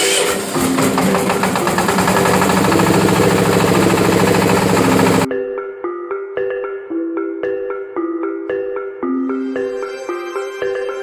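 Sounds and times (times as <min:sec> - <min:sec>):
diesel engine knocking: 0:00.3 - 0:05.3
music playing: 0:01.6 - 0:11.0.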